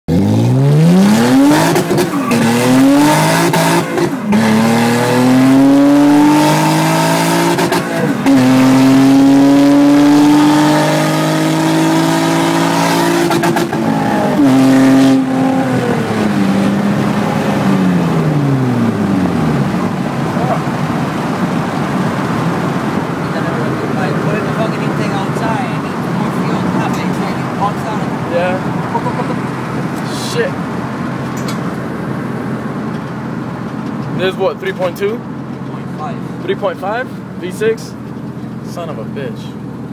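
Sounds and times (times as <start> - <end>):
car engine accelerating: 0.1 - 39.9.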